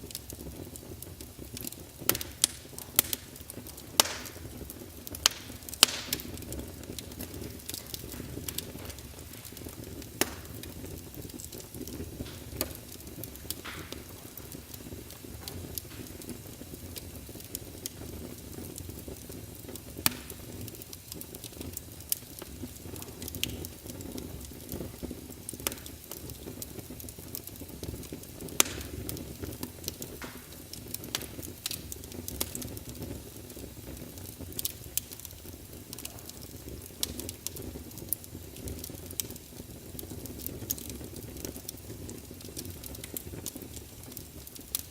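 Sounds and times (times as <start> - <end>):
low fire rumble: 0.0 - 44.9
wood fire crackling: 0.0 - 44.9
logs popping: 1.5 - 24.2, 27.4 - 33.1.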